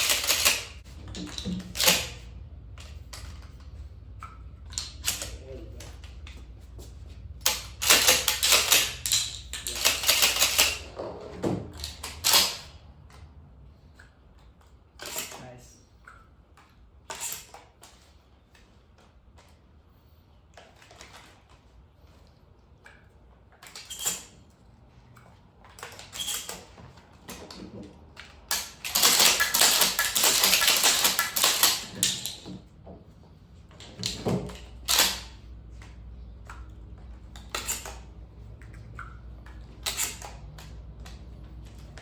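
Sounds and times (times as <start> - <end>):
shotgun clicks and clacks: 0.0 - 2.2, 7.4 - 10.9, 28.2 - 32.4, 34.0 - 35.3.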